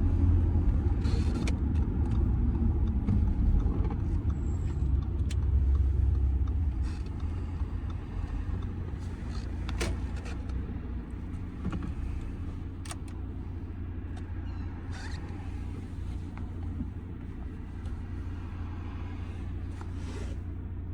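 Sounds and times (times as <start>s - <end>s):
diesel engine rumble in car cabin: 0.0s - 20.9s
road noise: 0.0s - 20.9s.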